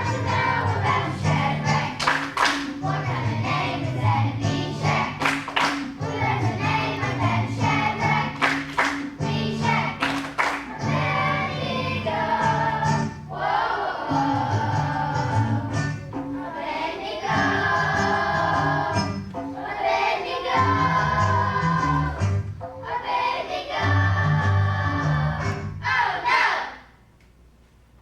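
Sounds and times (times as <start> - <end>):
accompaniment with bass and beat: 0.0 - 13.3, 14.1 - 16.6
children's choir singing: 0.0 - 27.0.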